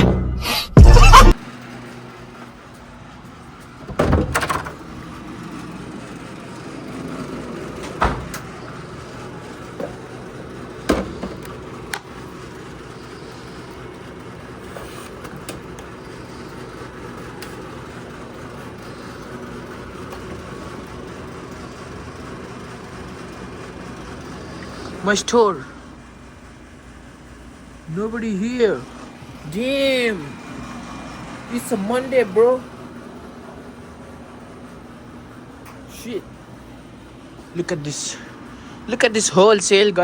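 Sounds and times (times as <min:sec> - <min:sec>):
steady background hum: 0:00.5 - 0:40.0
knocks and clunks: 0:03.8 - 0:04.8, 0:07.8 - 0:08.6.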